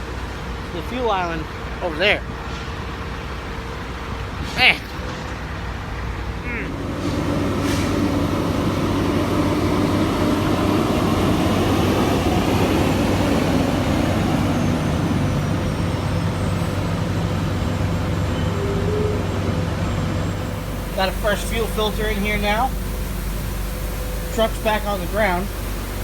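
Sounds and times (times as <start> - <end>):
diesel truck engine running: 5.7 - 26.0.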